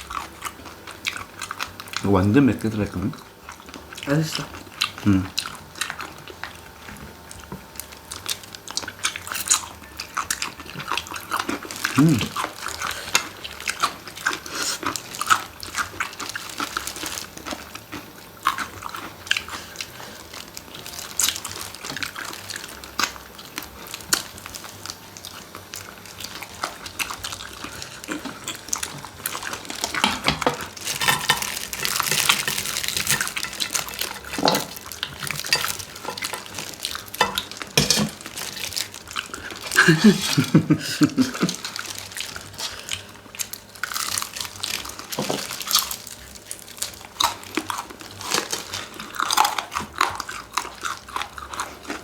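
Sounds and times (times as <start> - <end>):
chewing: 0.0 - 52.0
utensils clinking on dishes: 28.0 - 38.9.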